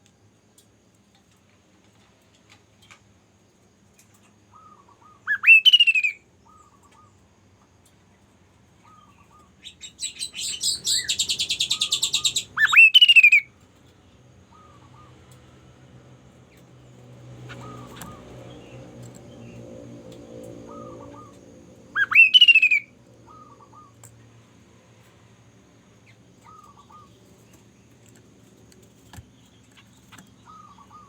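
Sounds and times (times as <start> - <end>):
bird whistle sweeping up: 5.3 - 6.2, 22.0 - 22.9
bird rattling trill: 20.5 - 24.0.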